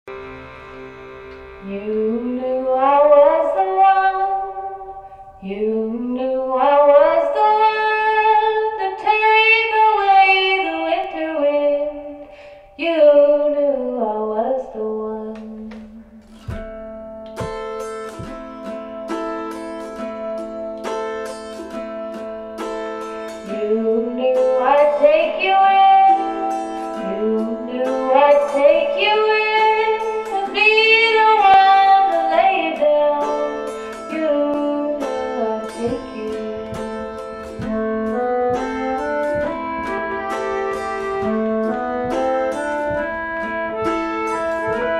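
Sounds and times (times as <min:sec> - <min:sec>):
sliding violin melody: 0:00.0 - 0:05.7, 0:16.2 - 0:44.9
plucked strings: 0:00.0 - 0:44.9
acoustic guitar picking: 0:00.1 - 0:12.2, 0:12.8 - 0:44.9.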